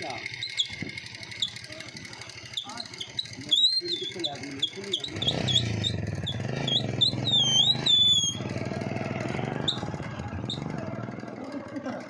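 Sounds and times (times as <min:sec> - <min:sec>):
motorcycle engine running at low revs: 0:00.0 - 0:12.0
high chirping whistles: 0:00.4 - 0:00.8, 0:02.6 - 0:08.5, 0:09.6 - 0:09.9.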